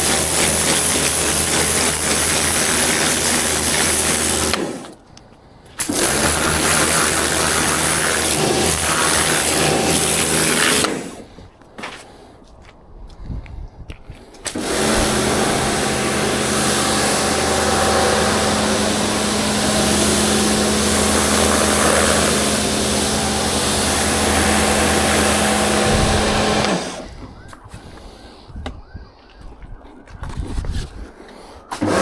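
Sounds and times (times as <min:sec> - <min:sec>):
electric motor running: 0:00.0 - 0:04.8, 0:05.8 - 0:11.2, 0:14.5 - 0:27.2.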